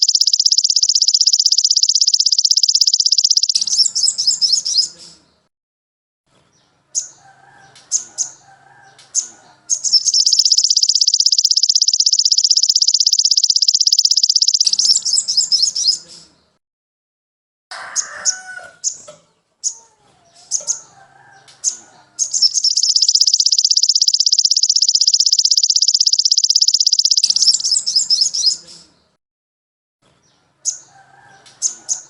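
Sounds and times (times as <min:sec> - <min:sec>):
sharp bird chirps: 0:00.0 - 0:05.2, 0:09.1 - 0:16.4, 0:20.5 - 0:28.9
songbird trilling and warbling: 0:00.0 - 0:05.2, 0:07.9 - 0:16.3, 0:20.5 - 0:28.9.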